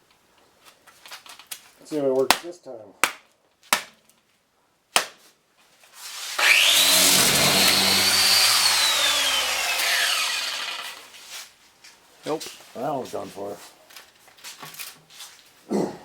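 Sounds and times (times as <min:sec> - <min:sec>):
power tool motor whining: 0:06.4 - 0:11.2.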